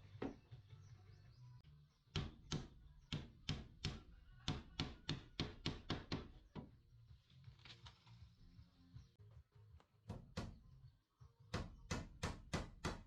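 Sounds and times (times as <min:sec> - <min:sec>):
hammer striking wood: 0:02.1 - 0:06.7, 0:10.1 - 0:10.6, 0:11.5 - 0:13.0.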